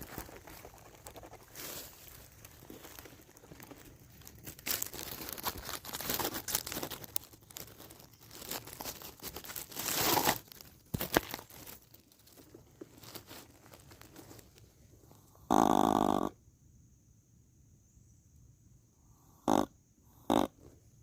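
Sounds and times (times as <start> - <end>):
dry leaves rustling and crackling: 0.0 - 14.8.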